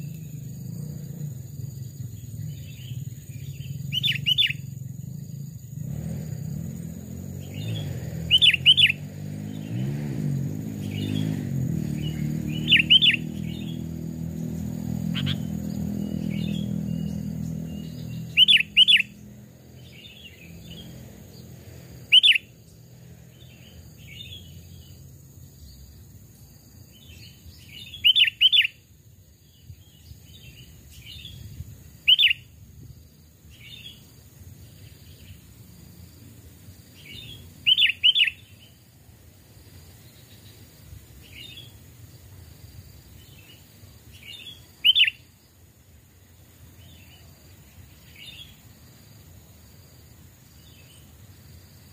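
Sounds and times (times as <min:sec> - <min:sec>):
bulbuls calling sharp notes: 0:07.4 - 0:09.9, 0:10.6 - 0:14.2, 0:15.0 - 0:19.2, 0:22.0 - 0:22.5, 0:36.9 - 0:38.7, 0:44.2 - 0:45.2
soft bird chattering: 0:12.0 - 0:13.8, 0:15.1 - 0:19.2, 0:37.0 - 0:38.6.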